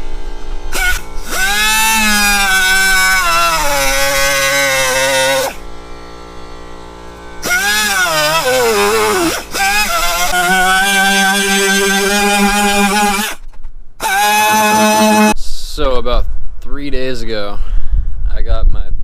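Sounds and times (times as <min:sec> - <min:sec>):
power tool cutting steel pipe: 0:00.0 - 0:13.4, 0:14.0 - 0:15.4.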